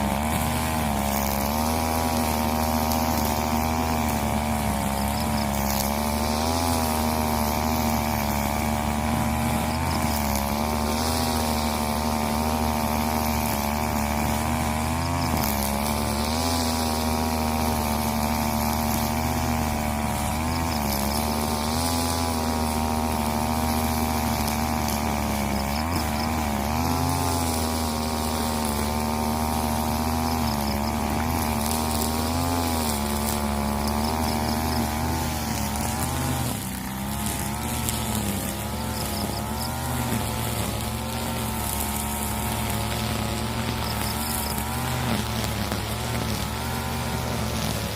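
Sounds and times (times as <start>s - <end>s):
brushcutter running at high throttle: 0.0s - 47.9s.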